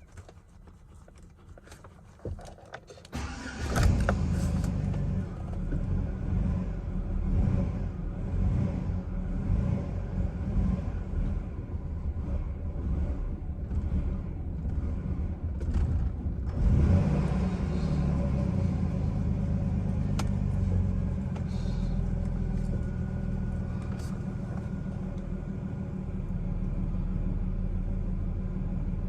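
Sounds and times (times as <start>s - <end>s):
car engine idling roughly: 3.1s - 6.1s, 17.4s - 29.0s.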